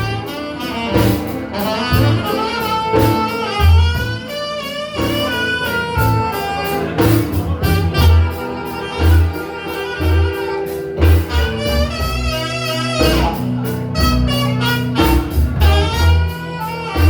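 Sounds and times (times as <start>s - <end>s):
bass: 0.0s - 17.0s
drums: 0.0s - 17.0s
saxophone melody: 0.0s - 17.0s.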